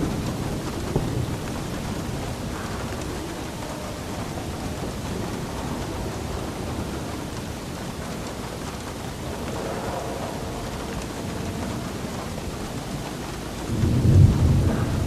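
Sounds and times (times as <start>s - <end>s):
low continuous rumble: 0.0s - 15.0s
steady rain falling: 0.0s - 15.0s.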